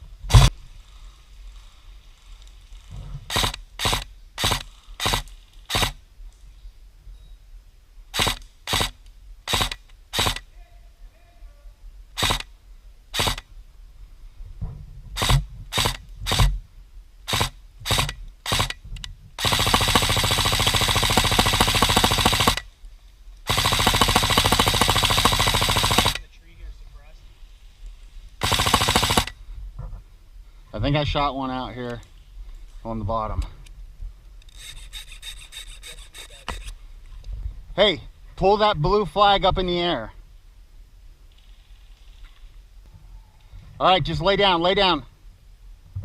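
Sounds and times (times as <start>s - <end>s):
airsoft gun firing single shots: 3.3s - 6.0s, 8.2s - 10.5s, 12.2s - 12.5s, 13.1s - 13.5s, 15.2s - 16.6s, 17.3s - 18.8s, 19.4s - 22.7s, 23.5s - 26.2s, 28.4s - 29.4s
airsoft gun full-auto burst: 3.3s - 6.0s, 8.1s - 10.5s, 12.2s - 12.5s, 13.1s - 13.4s, 15.2s - 16.6s, 17.3s - 18.8s, 19.4s - 22.7s, 23.5s - 26.2s, 28.4s - 29.4s.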